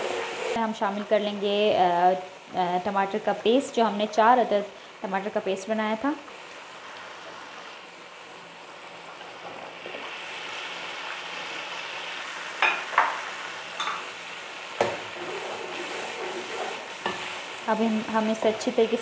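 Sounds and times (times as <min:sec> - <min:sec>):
oil and masala sizzling in a pan: 0:00.0 - 0:19.0
steel spoon clinking on a pan: 0:13.8 - 0:14.0.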